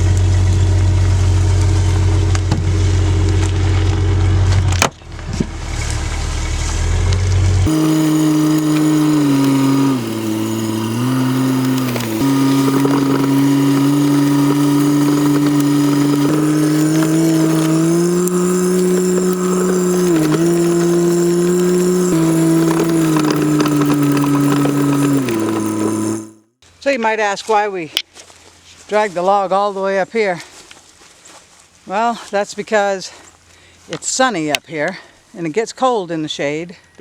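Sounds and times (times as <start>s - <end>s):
vehicle engine under load: 0.0s - 26.5s.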